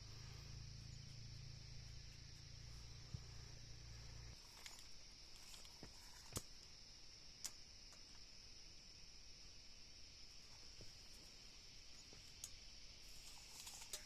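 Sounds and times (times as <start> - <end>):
low hum: 0.0 - 5.2
steady high hiss: 0.0 - 14.0.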